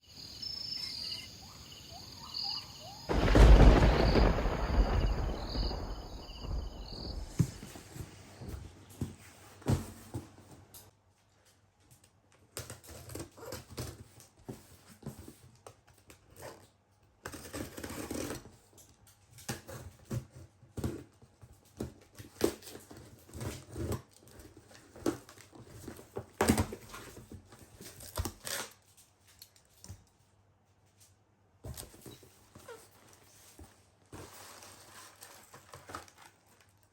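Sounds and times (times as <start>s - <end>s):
loud burst of noise: 3.1s - 7.5s.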